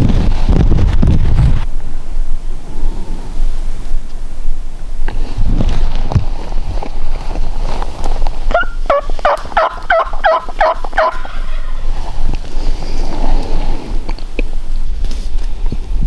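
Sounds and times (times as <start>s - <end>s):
low wind rumble: 0.0s - 16.0s
turkey yelping: 8.5s - 11.8s.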